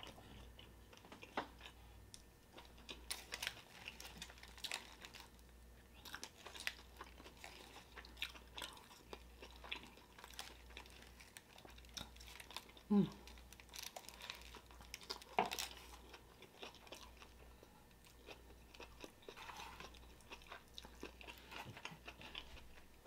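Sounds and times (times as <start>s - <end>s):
person chewing with wet smacks: 5.8s - 22.9s.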